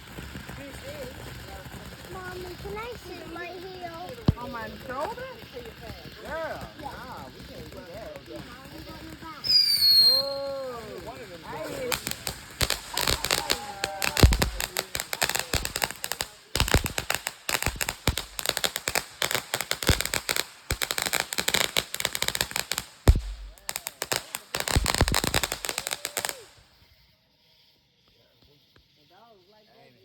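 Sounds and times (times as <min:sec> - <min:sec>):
fireworks crackling pops: 0:00.0 - 0:27.0
heavy firework bangs: 0:08.8 - 0:26.6.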